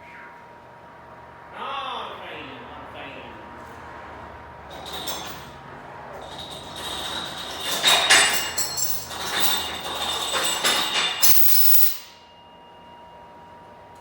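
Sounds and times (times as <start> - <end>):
steel parts and tools clanking: 4.6 - 12.2
sharp metallic knocks ringing: 6.2 - 12.2.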